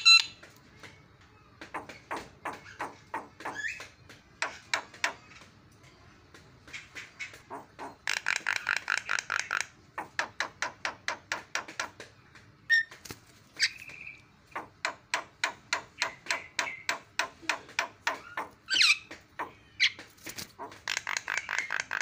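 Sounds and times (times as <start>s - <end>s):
squeaky bird call: 0.0s - 0.4s.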